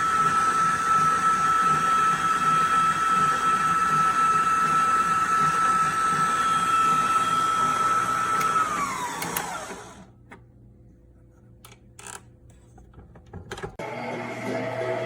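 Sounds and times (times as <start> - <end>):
stand mixer motor whining: 0.0 - 10.1, 13.8 - 15.0.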